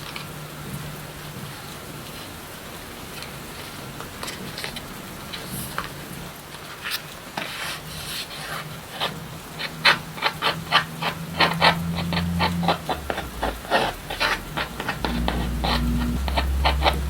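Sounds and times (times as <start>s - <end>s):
rubbing strokes on a surface: 6.8s - 17.0s
low steady hum: 9.3s - 17.0s.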